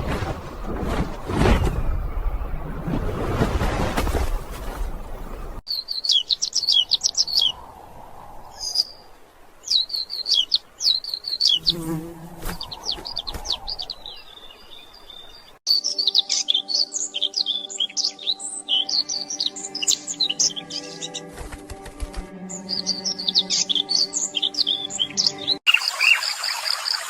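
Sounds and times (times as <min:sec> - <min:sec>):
songbird chirping: 0:00.4 - 0:27.0
rush of wind-like noise: 0:06.9 - 0:09.6.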